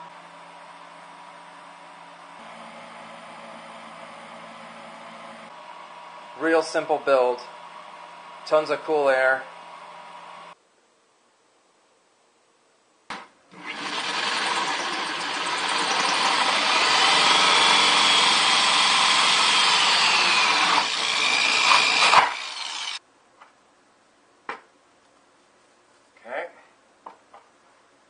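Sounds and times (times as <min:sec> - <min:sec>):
power drill cutting plastic: 0:13.5 - 0:23.0.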